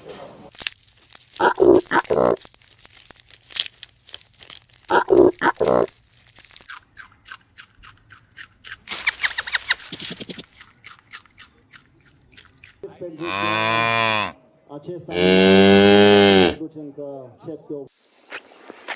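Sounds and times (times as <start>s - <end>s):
crunching and tearing grass: 0.5s - 11.5s
cattle calling: 1.4s - 2.4s, 4.9s - 5.9s, 13.2s - 14.4s, 15.1s - 16.6s.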